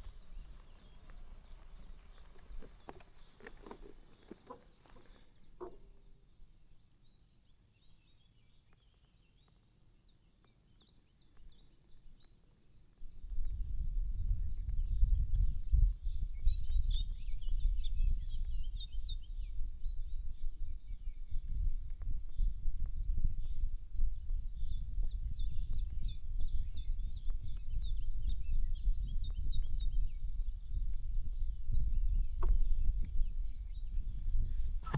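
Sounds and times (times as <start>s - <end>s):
small birds chirping: 0.0s - 34.9s
songbird singing: 0.0s - 34.9s.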